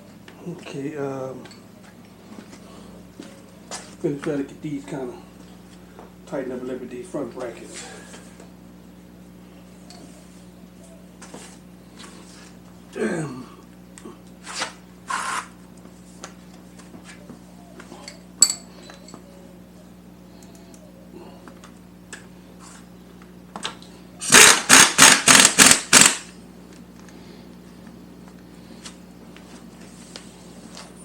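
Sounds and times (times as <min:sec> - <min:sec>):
light metal clinks: 0:18.0 - 0:19.2
sharp ringing clink: 0:18.1 - 0:19.1
rasping ratchet strokes: 0:24.2 - 0:26.3.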